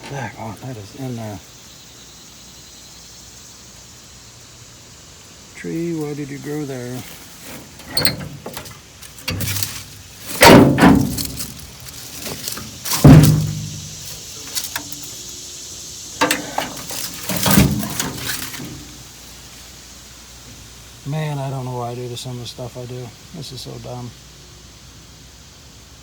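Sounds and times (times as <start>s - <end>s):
clunks and rattles: 7.5s - 15.0s, 16.2s - 19.0s
loud ringing bangs: 10.3s - 14.1s.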